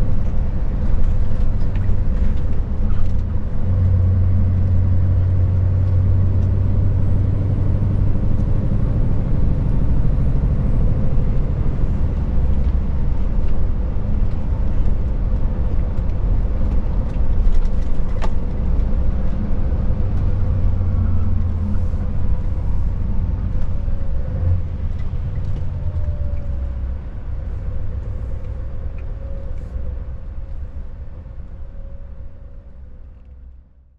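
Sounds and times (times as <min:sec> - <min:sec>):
truck diesel engine running: 0:00.0 - 0:29.0
road noise: 0:00.0 - 0:33.9.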